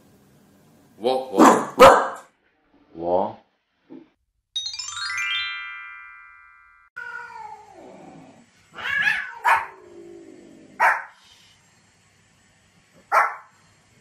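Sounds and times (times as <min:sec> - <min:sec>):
small dog barking: 0:01.4 - 0:02.3, 0:08.8 - 0:09.8, 0:10.8 - 0:11.2, 0:13.0 - 0:13.5
bright chime: 0:04.6 - 0:06.9
cat meowing: 0:07.0 - 0:07.9, 0:08.7 - 0:09.8.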